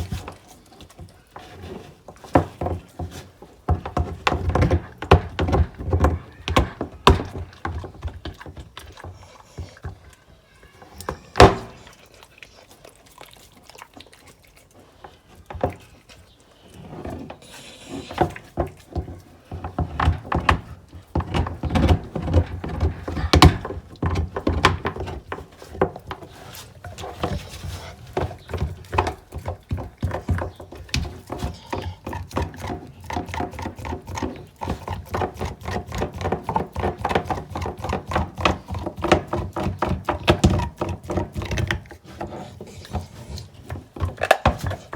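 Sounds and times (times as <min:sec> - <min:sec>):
dog crunching on a bone: 0:11.5 - 0:16.9, 0:31.5 - 0:44.9.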